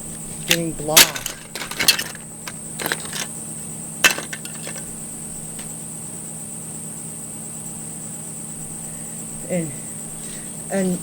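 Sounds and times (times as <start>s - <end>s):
toy pieces clattering: 0.4s - 3.3s, 4.0s - 5.0s.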